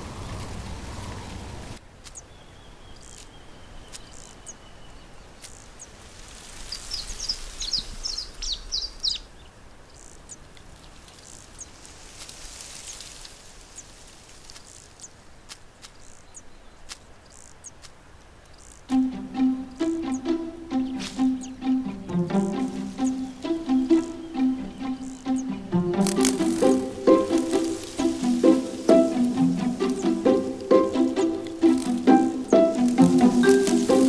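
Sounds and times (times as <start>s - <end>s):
steady outdoor hiss: 0.0s - 34.0s
bird chirping: 2.1s - 5.9s, 6.7s - 10.4s, 18.6s - 34.0s.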